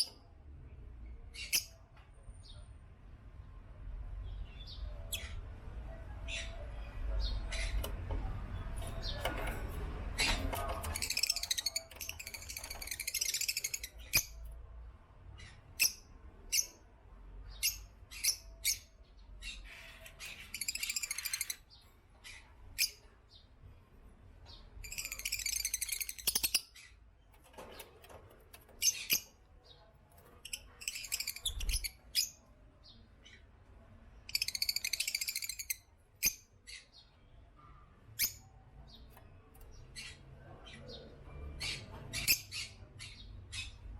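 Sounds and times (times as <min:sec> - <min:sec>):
lovebirds chirping: 0:01.0 - 0:02.7, 0:04.2 - 0:43.9
high-pitched bird chattering: 0:01.3 - 0:01.9, 0:10.2 - 0:14.4, 0:15.4 - 0:16.8, 0:17.5 - 0:23.2, 0:24.8 - 0:27.0, 0:28.7 - 0:32.4, 0:34.3 - 0:36.9.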